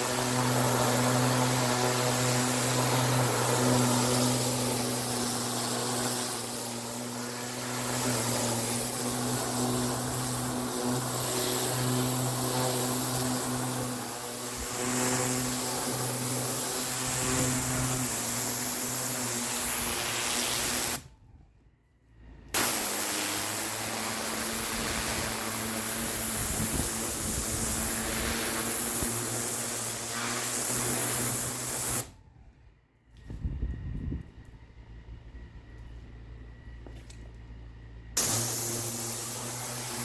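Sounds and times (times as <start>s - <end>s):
pressure washer spraying concrete: 0.0s - 21.0s, 22.5s - 32.1s, 38.2s - 40.0s
engine hum: 30.8s - 40.0s.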